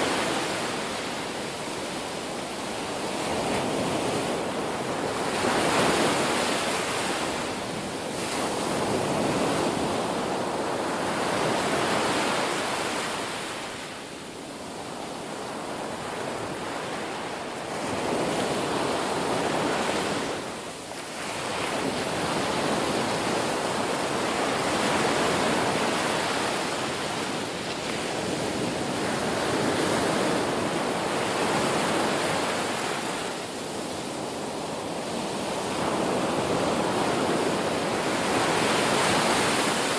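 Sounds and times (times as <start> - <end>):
ocean waves breaking: 15.5 - 39.9.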